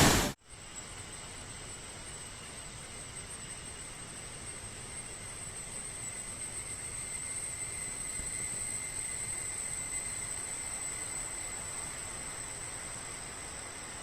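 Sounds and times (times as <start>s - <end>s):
waterfall rushing: 0.0s - 0.4s.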